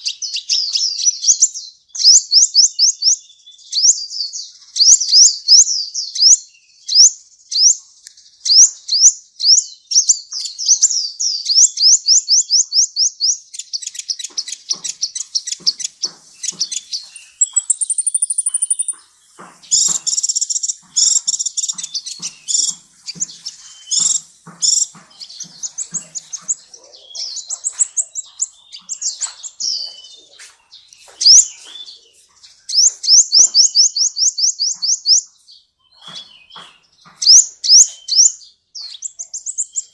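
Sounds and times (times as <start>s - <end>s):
bird chirping and trilling: 0.0s - 39.9s
bird chattering: 8.4s - 39.9s.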